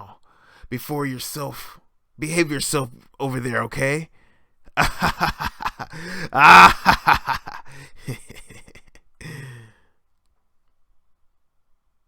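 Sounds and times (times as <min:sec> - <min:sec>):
man groaning and straining: 0:04.8 - 0:09.8.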